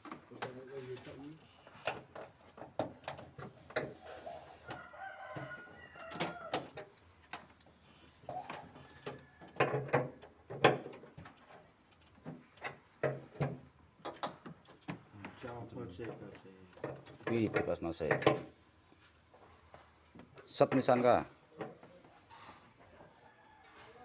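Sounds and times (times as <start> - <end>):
hand tools clicking and knocking: 1.6 - 4.8, 8.4 - 18.6, 20.2 - 23.0
rooster crowing: 4.5 - 6.7, 23.1 - 24.0.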